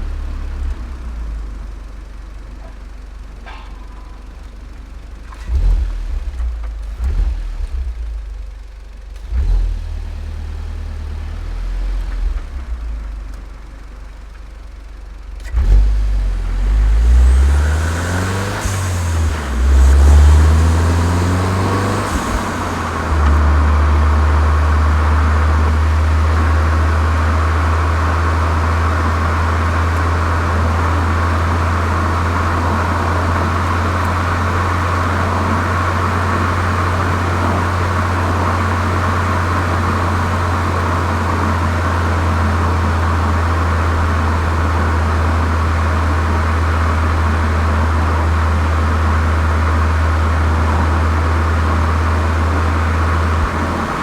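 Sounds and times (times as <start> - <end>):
car engine droning: 0.0 - 54.0.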